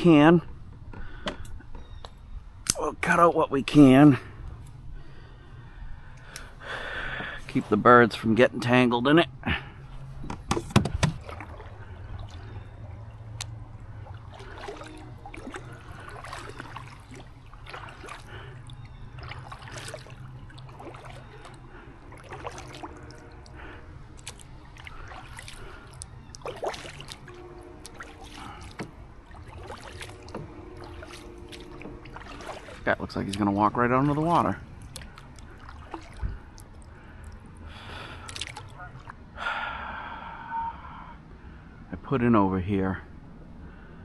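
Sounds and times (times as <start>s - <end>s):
water splashing around canoe: 9.5s - 39.3s.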